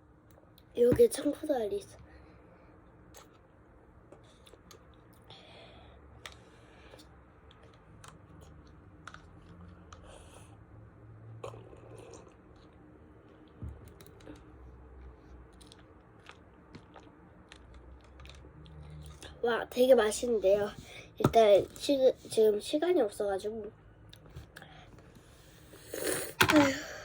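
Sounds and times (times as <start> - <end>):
wet mouth clicks: 3.1 - 3.4
faint chewing: 3.1 - 5.4, 6.2 - 10.6, 11.4 - 19.4.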